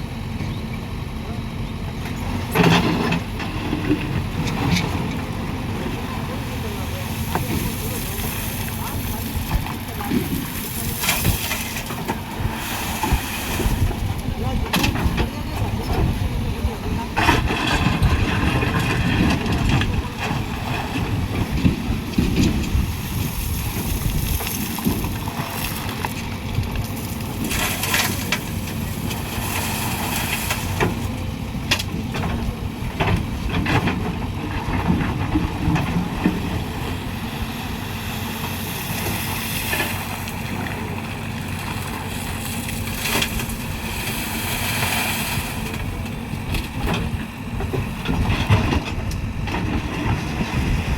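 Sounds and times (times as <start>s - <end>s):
diesel engine under load: 0.0s - 50.9s
earth and stones dug and dumped: 6.9s - 15.7s, 17.2s - 31.1s, 38.0s - 47.2s.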